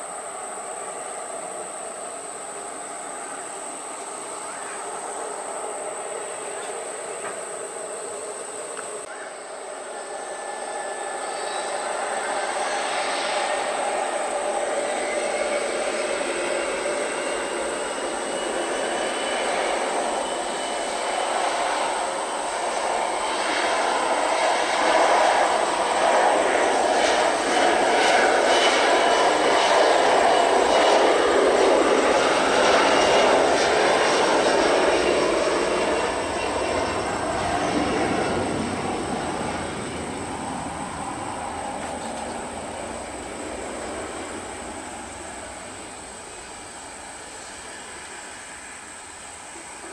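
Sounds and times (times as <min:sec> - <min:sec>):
faint high whine: 0:00.0 - 0:49.9
jet engines roaring: 0:00.0 - 0:49.9.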